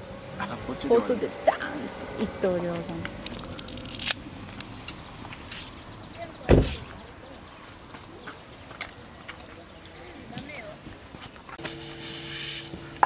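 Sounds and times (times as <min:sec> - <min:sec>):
dull thump: 0:06.5 - 0:07.0.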